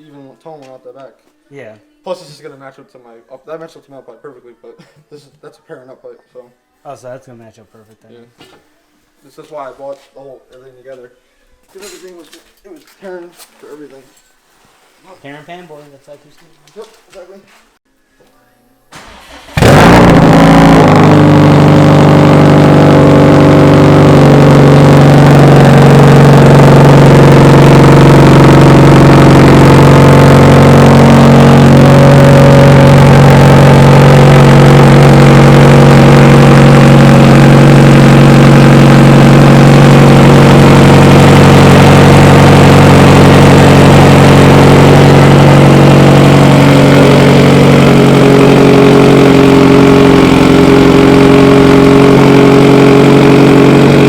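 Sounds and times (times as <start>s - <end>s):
car engine idling loudly: 19.0s - 54.0s.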